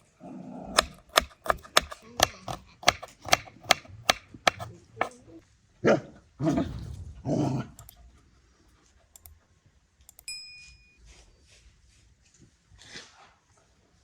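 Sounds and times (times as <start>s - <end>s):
dog barking: 5.8s - 6.2s
metallic utensil ding: 10.3s - 11.0s.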